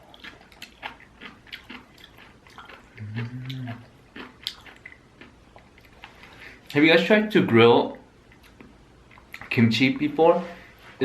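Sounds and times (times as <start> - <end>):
person chewing food: 0.0 - 6.8, 8.1 - 9.6
person humming mmm: 2.9 - 4.0.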